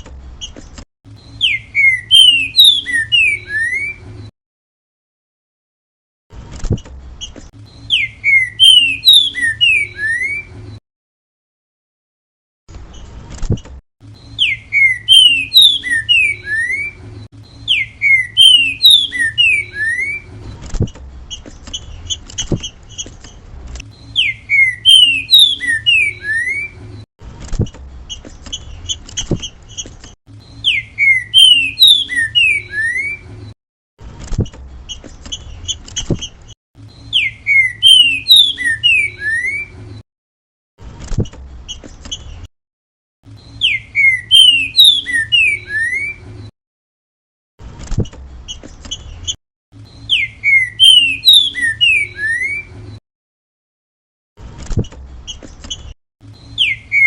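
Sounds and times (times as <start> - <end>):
bird whistled song: 1.2 - 4.1, 7.2 - 10.6, 14.1 - 20.4, 23.9 - 26.9, 30.3 - 33.4, 36.8 - 39.8, 43.3 - 46.3, 48.5 - 52.8, 56.3 - 57.0.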